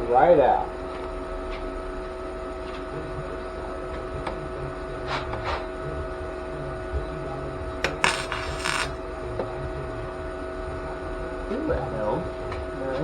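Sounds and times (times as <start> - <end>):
welding arc crackling: 8.0 - 9.0
wire welder humming: 8.0 - 9.0.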